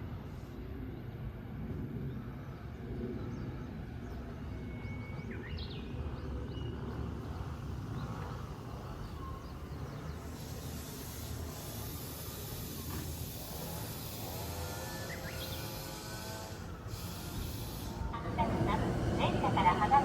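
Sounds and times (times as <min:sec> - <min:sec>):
high hiss: 0:10.1 - 0:18.5.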